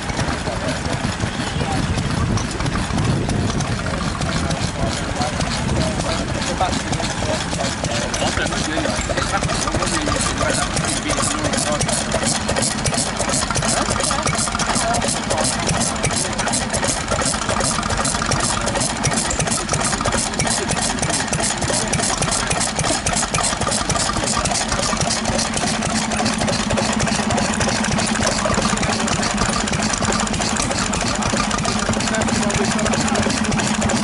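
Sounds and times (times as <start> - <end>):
stationary engines idling: 0.0 - 34.0.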